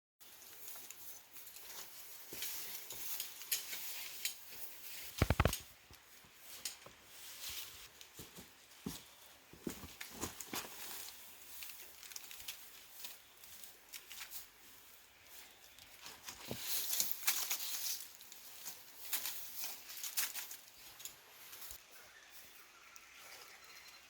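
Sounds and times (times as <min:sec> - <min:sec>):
objects clicking and knocking: 0:05.2 - 0:05.7.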